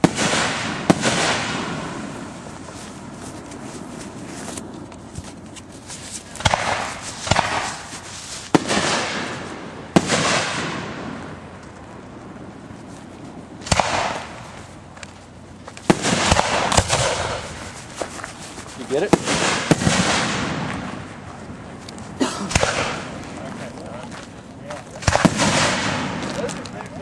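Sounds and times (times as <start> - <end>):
firework shells booming: 0.0 - 3.2, 5.7 - 11.8, 13.6 - 21.3, 22.2 - 23.4, 24.8 - 27.0
firework crackle: 0.0 - 24.0, 24.6 - 27.0.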